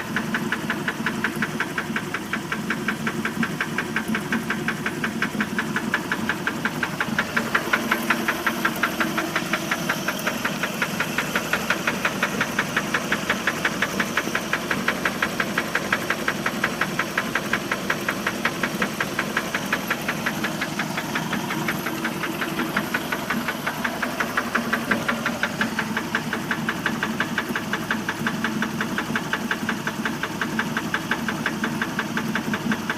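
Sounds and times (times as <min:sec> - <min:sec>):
rapid engine knock: 0:00.0 - 0:32.9
boat engine running: 0:04.7 - 0:30.4.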